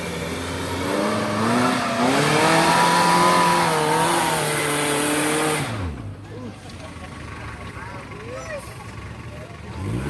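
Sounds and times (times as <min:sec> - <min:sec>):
vehicle engine revving: 0:00.0 - 0:06.4, 0:08.9 - 0:10.0.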